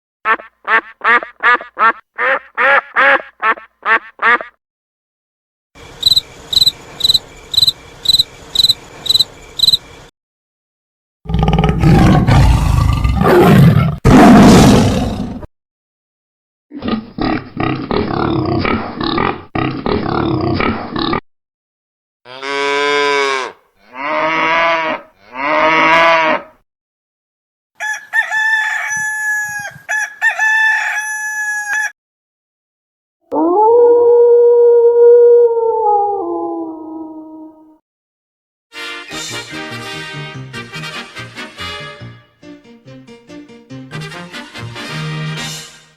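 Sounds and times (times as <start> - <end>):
cricket chirping: 5.8 - 10.1
pig grunting: 11.3 - 15.5, 16.7 - 21.2
tiger roaring: 11.3 - 15.5
cow mooing: 22.3 - 26.6
rooster crowing: 27.8 - 32.0.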